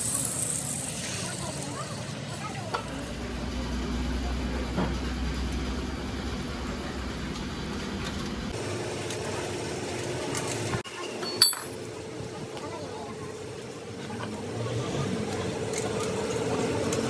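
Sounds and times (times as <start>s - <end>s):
low engine hum: 2.6s - 10.8s
sharp metallic clink: 11.2s - 11.8s.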